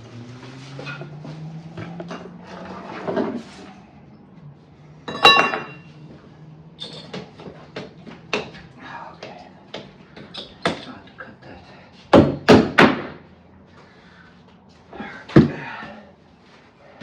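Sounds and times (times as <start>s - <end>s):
steady low hum: 0.0s - 17.0s
ringing metal clang: 5.1s - 5.9s.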